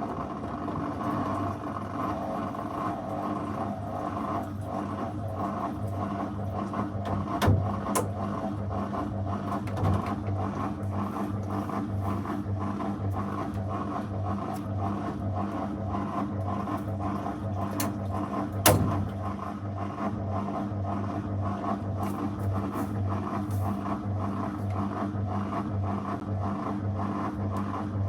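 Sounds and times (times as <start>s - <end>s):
washing machine hum: 0.0s - 28.0s.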